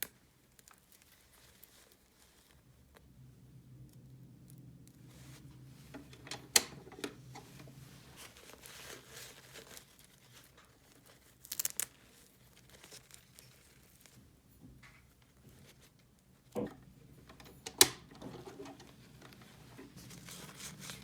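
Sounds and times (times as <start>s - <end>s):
packaging crinkling and tearing: 8.2s - 14.2s.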